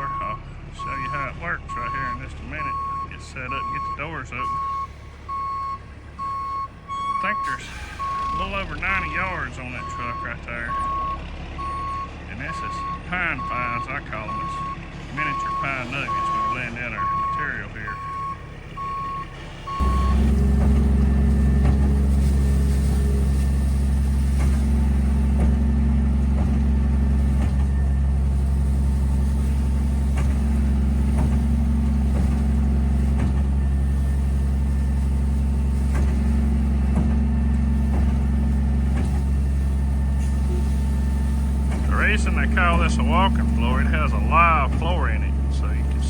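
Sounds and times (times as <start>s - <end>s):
reversing beeps: 0.0s - 21.8s, 41.8s - 46.0s
diesel truck engine droning: 0.0s - 46.0s.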